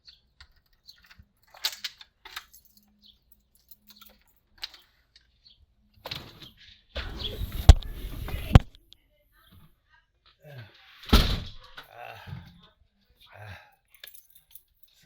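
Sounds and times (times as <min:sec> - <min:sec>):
sharp door clacks: 0:07.0 - 0:08.7, 0:11.1 - 0:11.7
door handling rustle: 0:07.0 - 0:08.8, 0:11.1 - 0:11.8.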